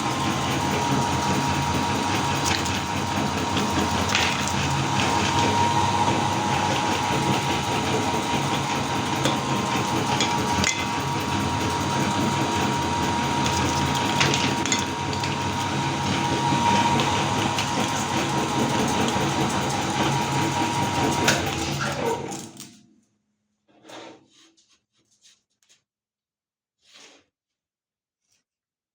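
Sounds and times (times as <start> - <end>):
meat grinder motor hum: 0.0 - 22.7.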